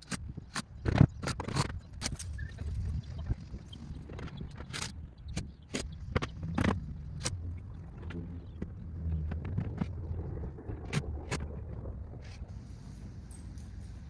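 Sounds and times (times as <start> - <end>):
low steady rumble: 5.0 - 14.0.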